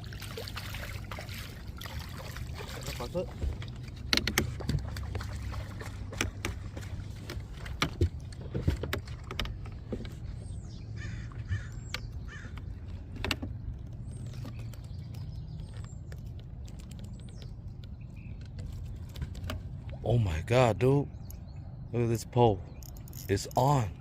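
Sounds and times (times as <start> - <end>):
low steady hum: 0.0 - 24.0
sharp clicks and knocks: 4.0 - 5.1, 6.1 - 10.2, 11.8 - 19.7
harsh bird calls: 10.3 - 13.1.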